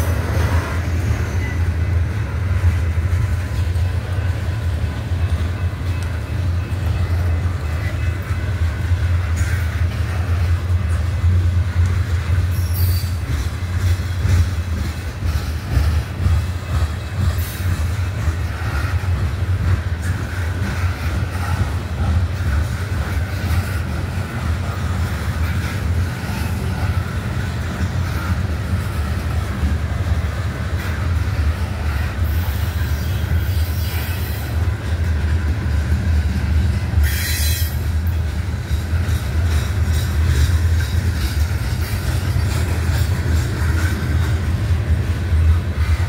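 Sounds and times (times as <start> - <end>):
train wheels rumbling on rails: 0.0 - 46.0
wheel squeal: 12.5 - 13.3.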